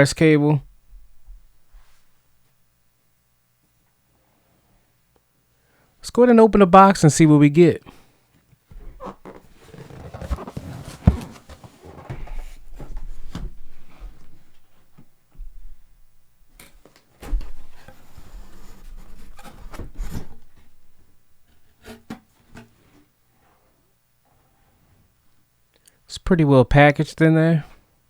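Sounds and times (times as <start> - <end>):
cardboard rubbing and scraping: 9.0 - 12.6
knocks on cardboard box: 10.1 - 11.8.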